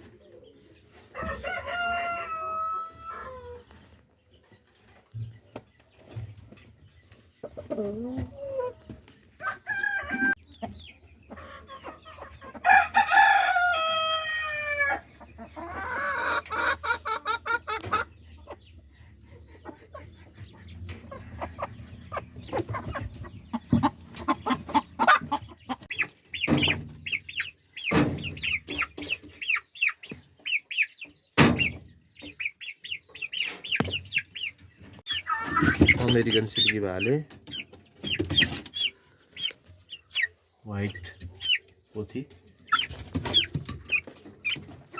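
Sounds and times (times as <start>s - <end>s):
chickens clucking: 0.0s - 44.9s
rooster crowing: 1.2s - 3.6s, 9.4s - 10.4s, 12.6s - 15.0s.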